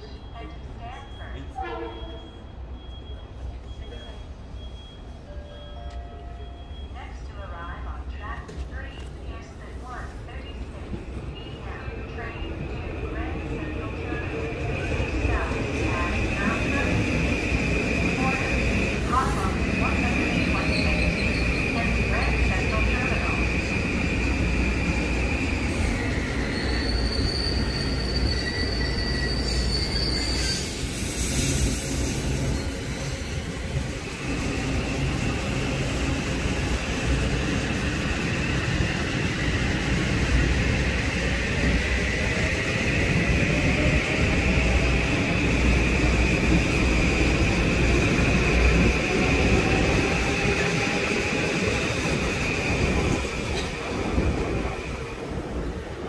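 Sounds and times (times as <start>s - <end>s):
train rumbling past: 0.6s - 56.0s
wheels squealing: 25.7s - 33.8s.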